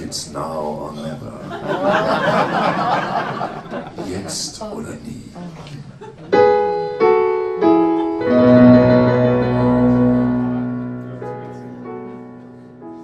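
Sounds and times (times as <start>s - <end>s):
piano chords ringing: 6.3s - 13.0s.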